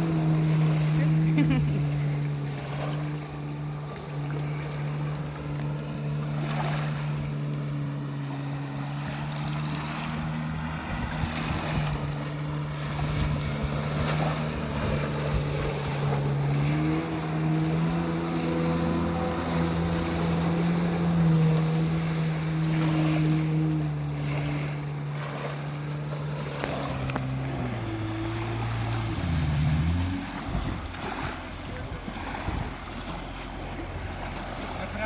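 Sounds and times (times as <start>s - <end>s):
rushing water: 0.0s - 35.0s
watercraft engine running: 0.0s - 35.0s
wind on microphone: 10.5s - 21.9s, 27.1s - 33.0s.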